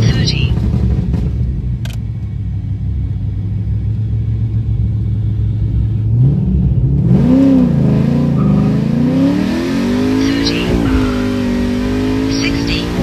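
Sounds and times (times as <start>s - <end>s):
engine running and revving: 0.0s - 13.0s.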